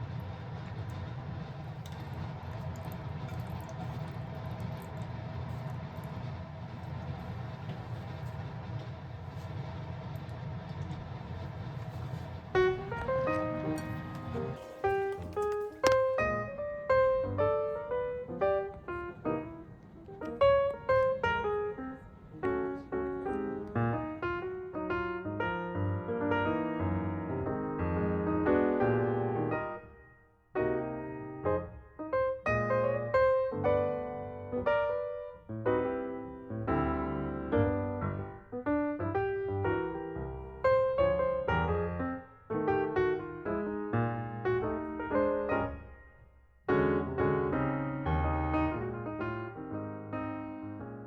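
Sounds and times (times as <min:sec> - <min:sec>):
electric piano chords: 0:00.0 - 0:51.0
keyboard melody: 0:12.5 - 0:30.0.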